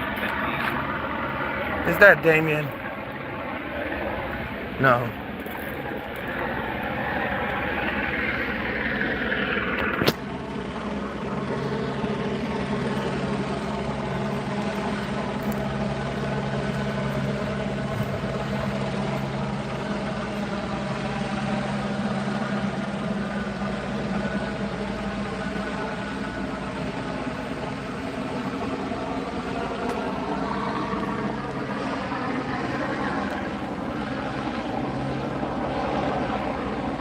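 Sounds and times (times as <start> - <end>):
vehicle engine idling: 0.0 - 37.0.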